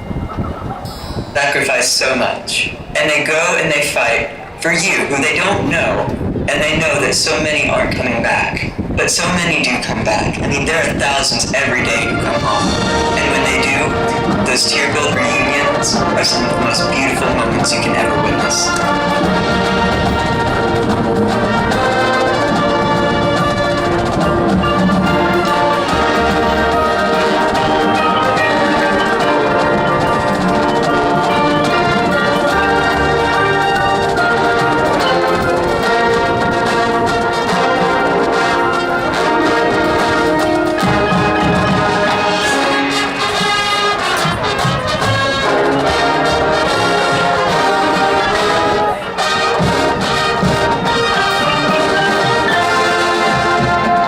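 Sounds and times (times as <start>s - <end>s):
percussion: 0.0s - 1.7s, 11.9s - 54.0s
marching band brass chords: 0.0s - 54.0s.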